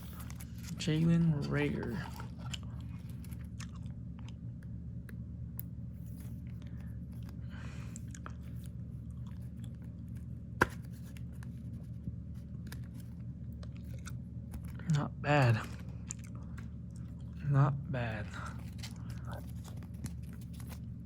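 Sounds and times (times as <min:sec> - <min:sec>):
trading cards clicking and rustling: 0:00.0 - 0:03.6, 0:06.0 - 0:17.0, 0:18.2 - 0:21.0
steady low hum: 0:00.0 - 0:21.0.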